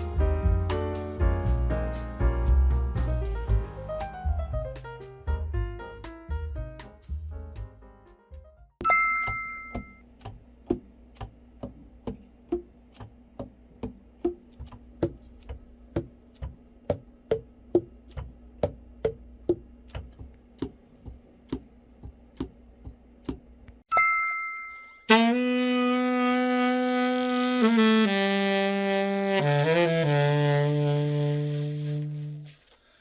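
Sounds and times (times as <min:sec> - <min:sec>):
ringing chime: 0:08.8 - 0:10.0, 0:23.9 - 0:25.1.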